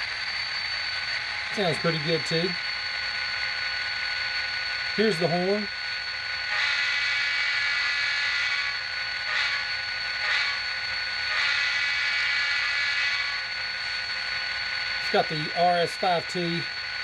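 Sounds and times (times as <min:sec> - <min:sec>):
thin locomotive horn from small speaker: 0:06.5 - 0:13.5.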